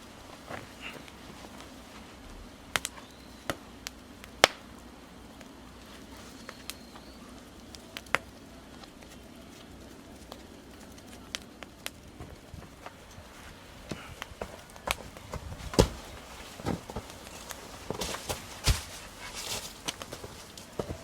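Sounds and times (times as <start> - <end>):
firewood crackling: 0.0 - 21.0
sharp pops and cracks: 2.7 - 21.0.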